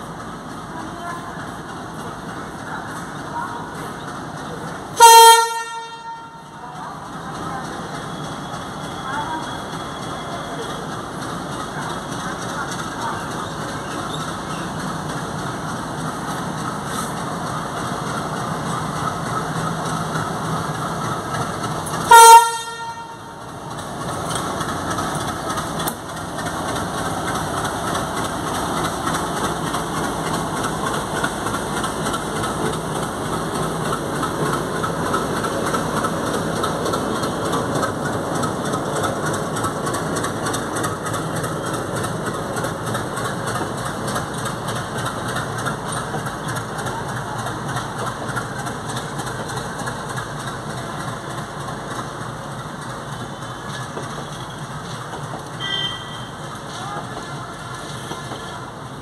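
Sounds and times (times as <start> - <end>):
coaches rolling on rails: 0.0 - 59.0
diesel locomotive engine: 0.0 - 59.0
train horn blast: 5.0 - 6.5, 22.1 - 23.4, 55.6 - 56.4.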